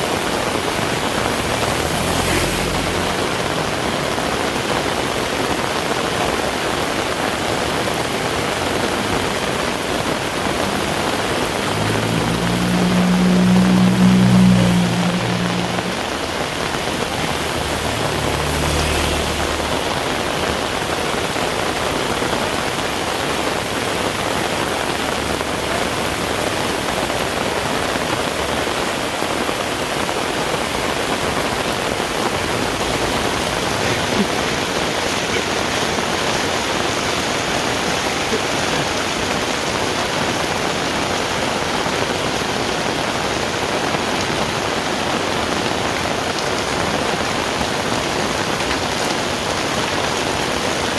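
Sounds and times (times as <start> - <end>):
heavy rain on a road: 0.0 - 50.9.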